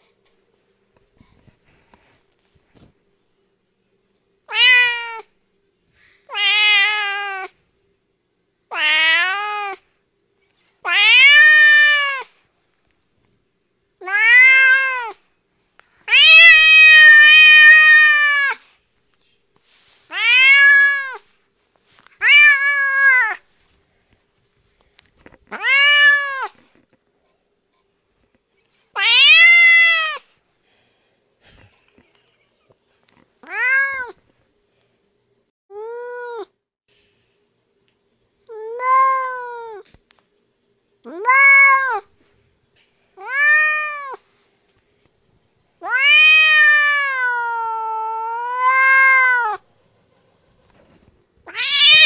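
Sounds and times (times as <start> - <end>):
cat meowing: 4.5 - 5.3, 6.3 - 7.5, 8.7 - 9.8, 10.8 - 12.3, 14.0 - 15.2, 16.1 - 18.6, 20.1 - 21.2, 22.2 - 23.4, 25.5 - 26.6, 29.0 - 30.2, 33.4 - 34.2, 38.6 - 39.8, 41.1 - 42.1, 43.2 - 44.2, 45.8 - 49.6, 51.4 - 52.0.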